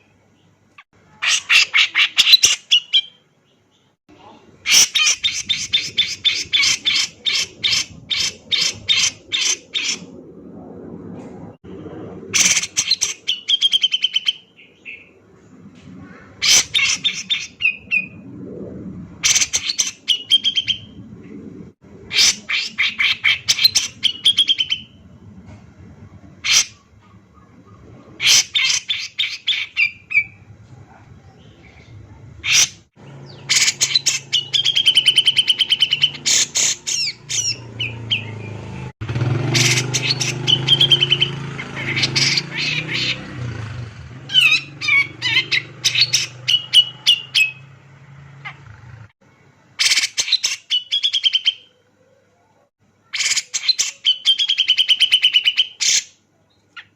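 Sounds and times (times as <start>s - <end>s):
low steady hum: 5.8s - 13.4s, 14.4s - 22.2s.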